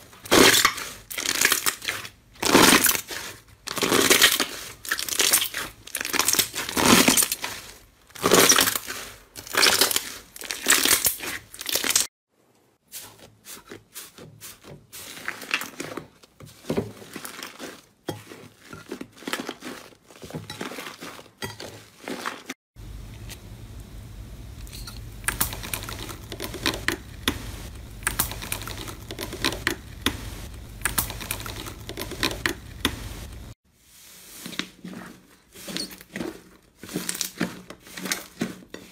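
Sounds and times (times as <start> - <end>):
slime squeezed wet crackling: 0.2 - 12.1
steady low hum: 22.8 - 33.6.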